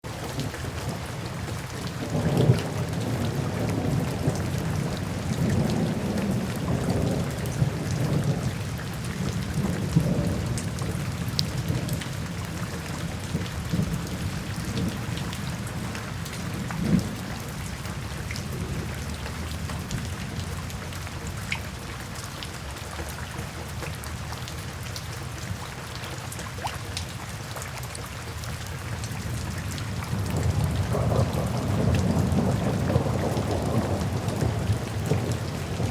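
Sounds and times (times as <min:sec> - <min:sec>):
steady rain: 0:00.0 - 0:35.9
raindrop ticks: 0:00.1 - 0:35.9
low rolling thunder: 0:00.3 - 0:21.8, 0:29.1 - 0:35.9.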